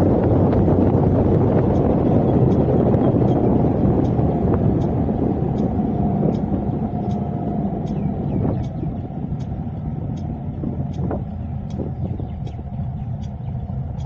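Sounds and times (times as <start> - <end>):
car road and engine rumble: 0.0 - 14.0
faint regular ticking: 0.1 - 14.0.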